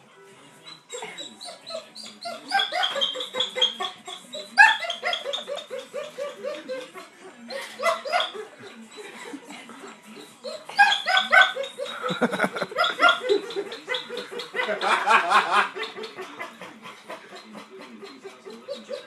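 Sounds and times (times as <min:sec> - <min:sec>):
dog whining in yips: 0:00.7 - 0:06.8, 0:10.4 - 0:11.9.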